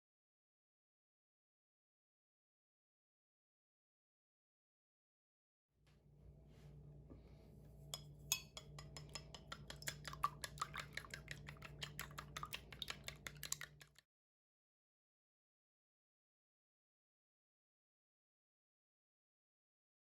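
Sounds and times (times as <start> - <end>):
sharp food preparation taps: 8.0 - 14.0.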